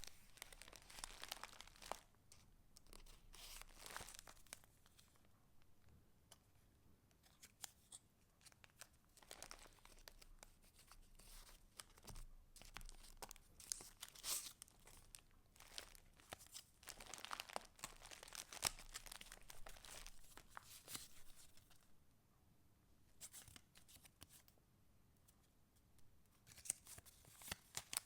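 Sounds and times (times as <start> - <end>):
paper rustling and crinkling: 0.0 - 5.2, 7.2 - 21.8, 26.4 - 28.0.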